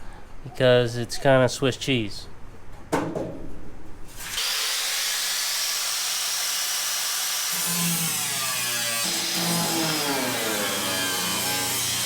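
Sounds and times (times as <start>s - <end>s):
power cutting tool cutting metal: 4.1s - 12.0s.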